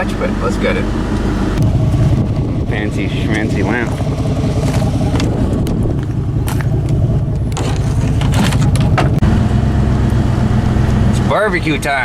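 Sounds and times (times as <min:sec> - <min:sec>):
pickup truck engine running: 0:00.0 - 0:12.0
rattles and clicks: 0:03.0 - 0:09.2.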